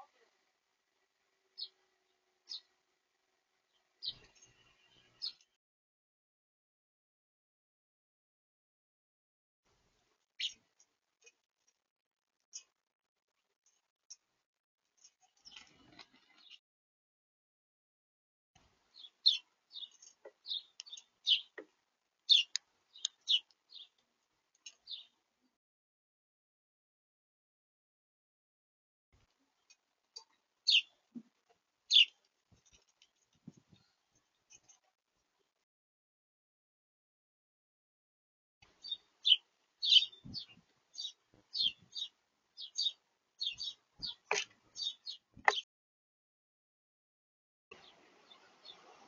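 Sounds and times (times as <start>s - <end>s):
small songbirds chirping: 1.3s - 5.6s, 10.0s - 11.8s, 12.5s - 12.8s, 15.0s - 16.6s, 18.6s - 25.3s, 29.5s - 34.9s, 38.6s - 45.7s, 47.7s - 49.0s.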